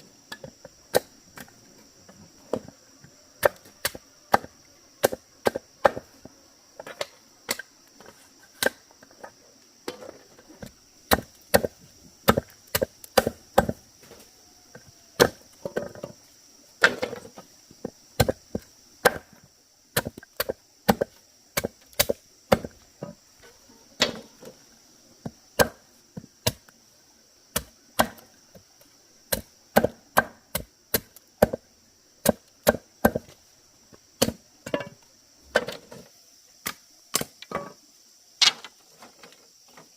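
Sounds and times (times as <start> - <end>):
high insect drone: 0.0 - 39.9
blade chopping bamboo: 11.1 - 13.8, 20.0 - 22.7, 25.6 - 25.8, 32.2 - 33.3, 34.2 - 34.4.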